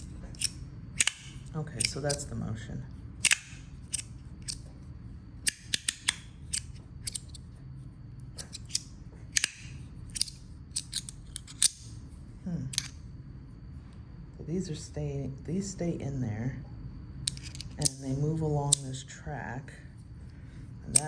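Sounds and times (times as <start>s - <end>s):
magnetic fidget slider clicking: 0.0s - 2.2s, 3.2s - 4.6s, 5.4s - 7.4s, 8.4s - 11.9s.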